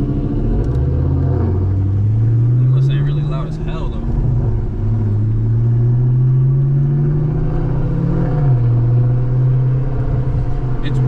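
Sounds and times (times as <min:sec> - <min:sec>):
car engine accelerating: 0:00.0 - 0:11.0
road rumble: 0:00.0 - 0:11.0.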